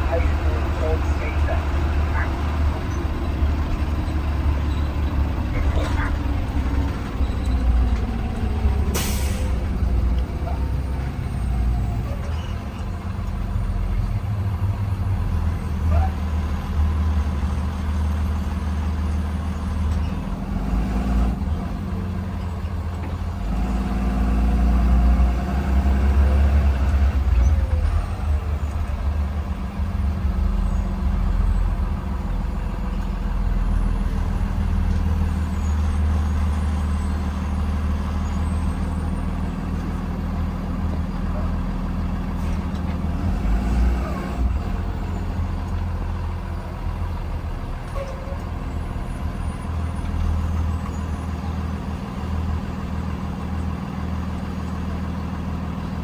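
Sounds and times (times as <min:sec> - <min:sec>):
bus engine droning: 0:00.0 - 0:56.0
air brakes burst: 0:08.9 - 0:09.7.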